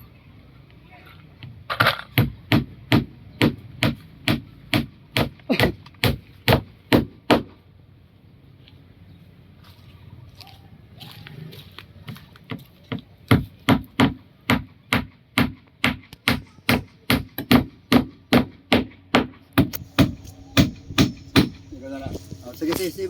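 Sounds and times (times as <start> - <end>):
hammer blows on wood: 13.3 - 21.7.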